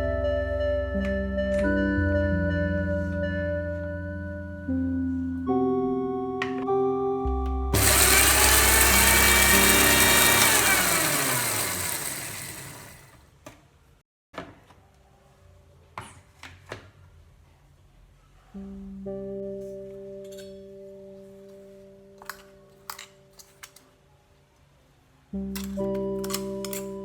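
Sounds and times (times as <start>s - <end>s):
soft instrumental music: 0.0s - 8.0s, 18.6s - 23.4s, 25.3s - 27.0s
mixer grinder motor: 7.8s - 13.2s.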